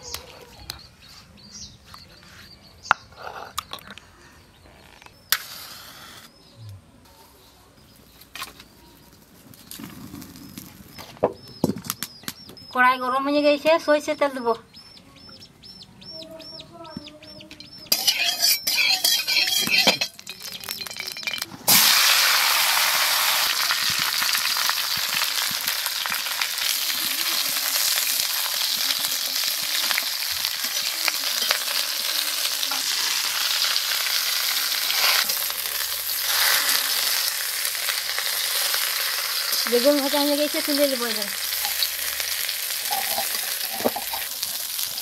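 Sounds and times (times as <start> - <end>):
ladle stirring in pan: 17.9 - 21.8
crackling and clatter in pan: 17.9 - 45.0
loud steady oil sizzle: 17.9 - 45.0.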